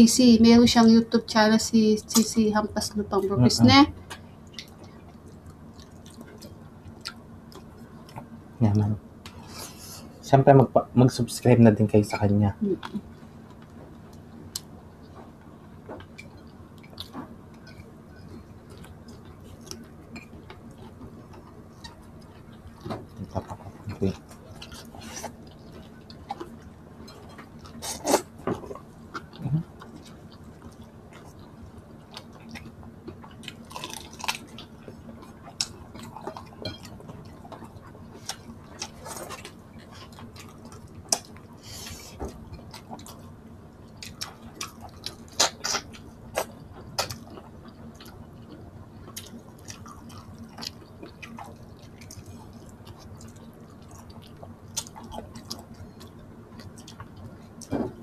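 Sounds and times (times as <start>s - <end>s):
wet chewing and lip smacks: 4.1s - 8.3s, 16.0s - 26.7s, 43.9s - 57.7s.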